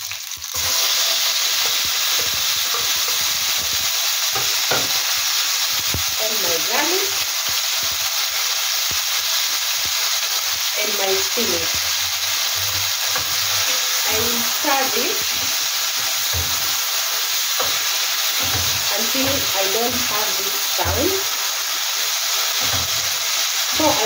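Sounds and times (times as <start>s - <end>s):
tomatoes sizzling in hot oil: 0.0s - 24.0s
wooden spatula knocking in pan: 1.5s - 6.1s, 11.6s - 14.6s, 15.2s - 21.3s, 22.6s - 23.2s.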